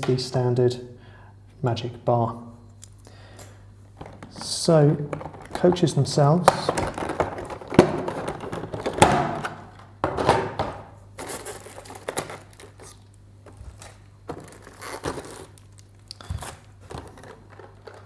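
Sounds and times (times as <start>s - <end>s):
crinkling plastic: 4.0s - 9.4s, 11.2s - 18.0s.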